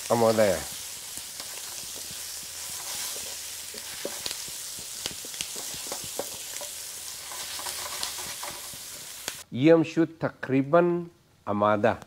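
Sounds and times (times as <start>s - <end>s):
food sizzling in a pan: 0.0s - 9.5s
wooden spatula scraping a pan: 0.3s - 9.3s.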